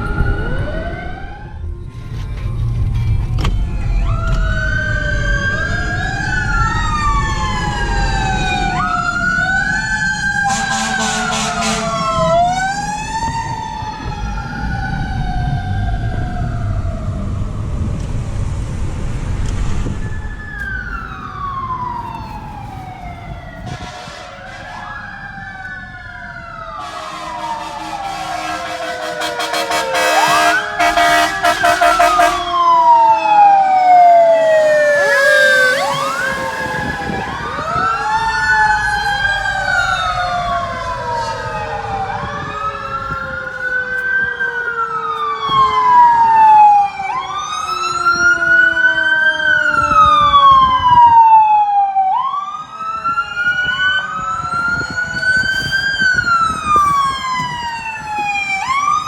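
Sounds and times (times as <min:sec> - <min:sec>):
fire truck siren wailing: 0:00.0 - 0:59.0
horn blaring: 0:10.4 - 0:12.3, 0:20.2 - 0:25.4, 0:26.7 - 0:43.6.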